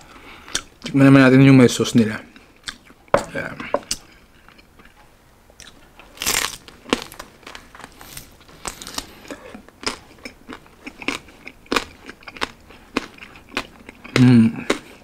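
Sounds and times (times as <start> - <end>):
chewing crunchy crackling: 5.6 - 15.0.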